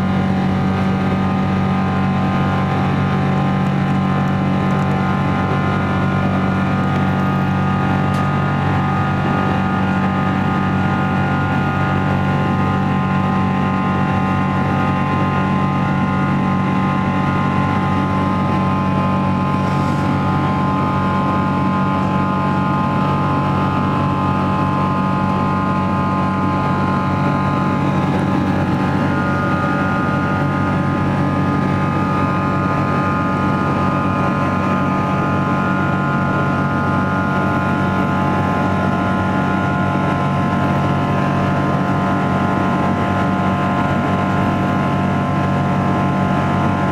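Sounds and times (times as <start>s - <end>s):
aircraft engines droning: 0.0s - 46.9s
rush of air: 19.2s - 22.6s.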